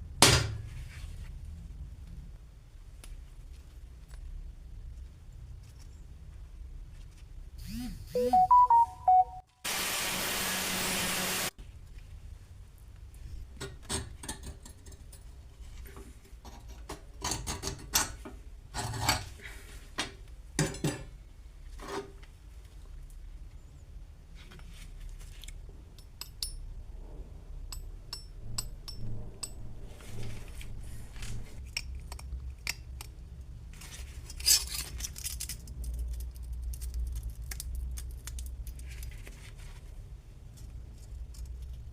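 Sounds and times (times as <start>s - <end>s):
short musical notes: 8.2s - 9.5s
loud even hiss: 9.7s - 11.5s.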